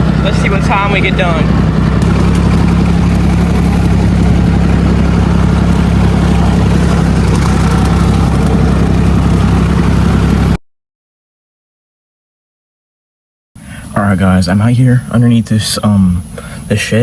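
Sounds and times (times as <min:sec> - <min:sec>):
tractor diesel engine running: 0:00.0 - 0:10.6.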